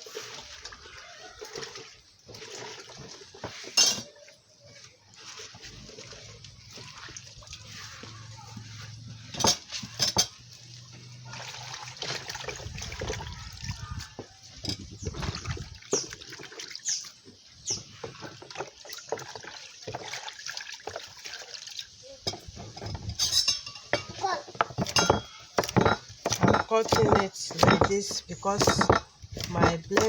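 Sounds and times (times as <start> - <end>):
water splashing and sloshing: 0.0 - 30.0.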